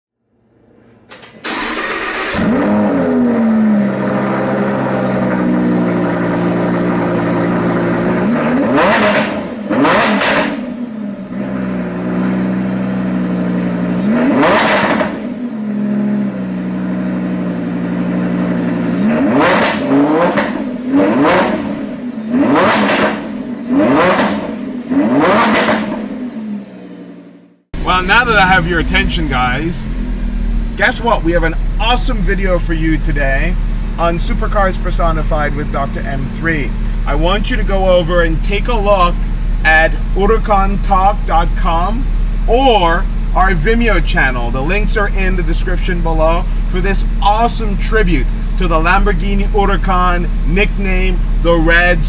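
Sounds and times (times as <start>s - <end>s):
car engine starting and idling: 0.3s - 52.0s
engine rev blips: 0.7s - 37.1s.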